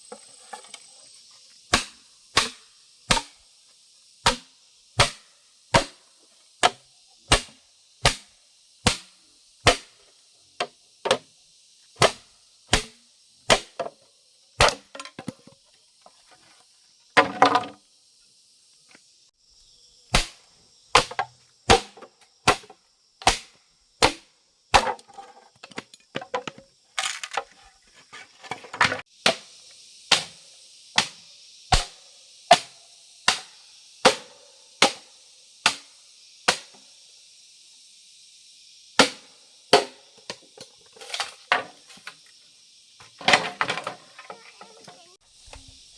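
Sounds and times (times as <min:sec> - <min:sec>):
blade chopping wood: 0:01.7 - 0:03.4, 0:04.2 - 0:06.0, 0:06.6 - 0:10.0, 0:10.6 - 0:11.3, 0:12.0 - 0:14.0, 0:14.6 - 0:15.6, 0:17.2 - 0:17.8, 0:20.1 - 0:27.5, 0:28.4 - 0:29.5, 0:30.1 - 0:30.4, 0:31.0 - 0:35.9, 0:39.0 - 0:42.2
scraping and rustling: 0:25.1 - 0:29.1.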